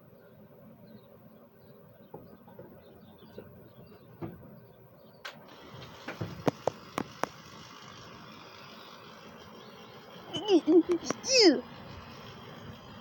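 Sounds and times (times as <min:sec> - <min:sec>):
sharp clicks and taps: 0:06.4 - 0:07.4.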